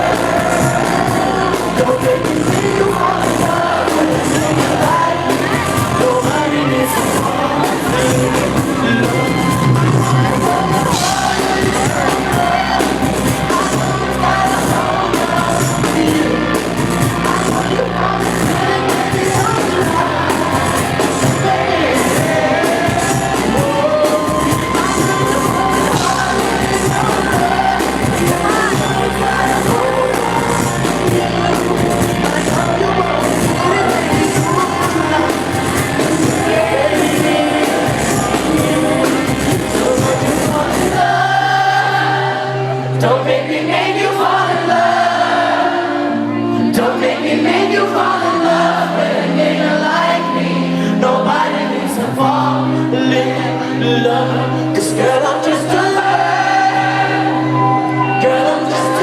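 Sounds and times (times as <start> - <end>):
drums and bass beat: 0.0 - 42.0
man singing: 0.0 - 45.2, 46.5 - 59.0.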